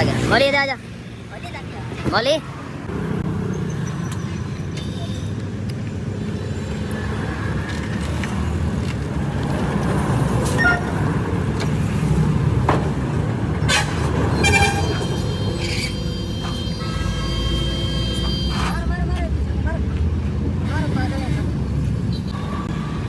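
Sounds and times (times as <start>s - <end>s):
road traffic rumbling: 0.0s - 23.0s
vehicle horn toots: 13.7s - 18.9s.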